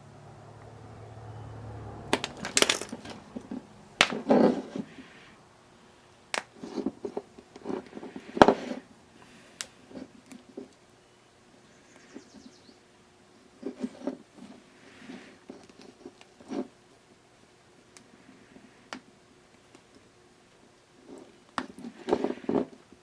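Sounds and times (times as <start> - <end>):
low hum: 0.0 - 4.0
tools clicking and knocking: 2.1 - 4.4
light metallic clatter: 2.1 - 4.6.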